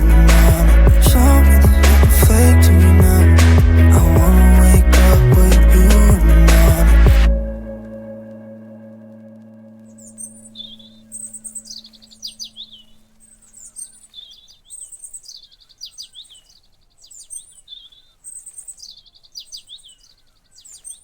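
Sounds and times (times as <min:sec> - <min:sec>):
held low tone: 0:00.0 - 0:13.4
songbird singing: 0:07.3 - 0:21.0.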